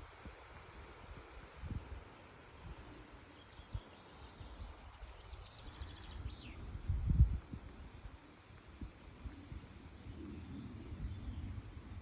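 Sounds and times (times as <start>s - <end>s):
wind buffeting microphone: 0.0s - 3.0s, 3.7s - 12.0s
steady outdoor hiss: 0.0s - 12.0s
small songbird singing: 2.5s - 8.5s.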